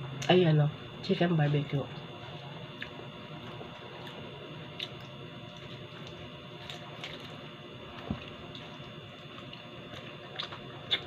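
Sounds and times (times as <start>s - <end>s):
person chewing: 2.8s - 11.0s.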